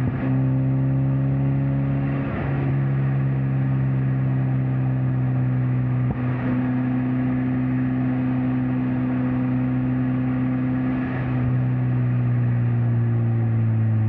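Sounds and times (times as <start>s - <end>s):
car engine and exhaust droning: 0.0s - 14.0s
road and wind noise: 0.0s - 14.0s.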